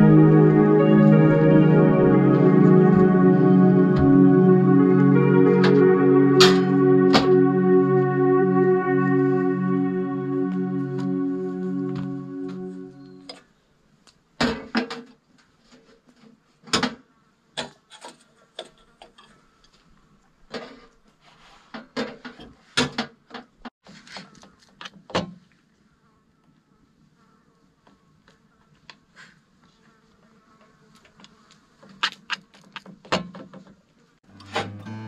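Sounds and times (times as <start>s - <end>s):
faint insect buzz: 25.9s - 32.3s.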